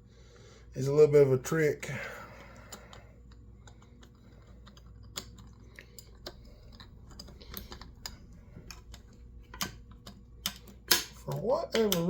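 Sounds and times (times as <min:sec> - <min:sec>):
small clicks and metal taps: 0:02.6 - 0:12.0.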